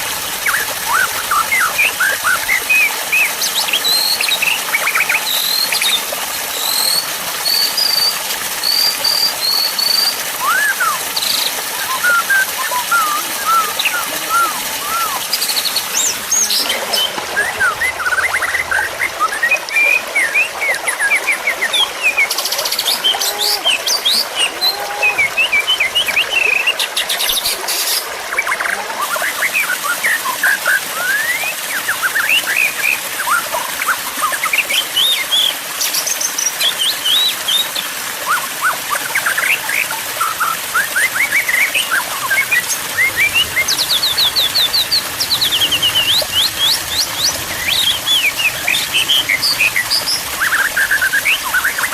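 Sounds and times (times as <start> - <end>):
songbirds singing: 0.0 - 51.9.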